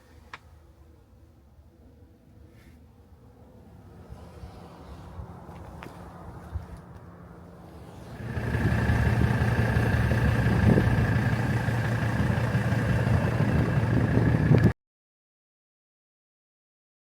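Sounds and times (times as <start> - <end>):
diesel engine running: 7.4 - 14.8.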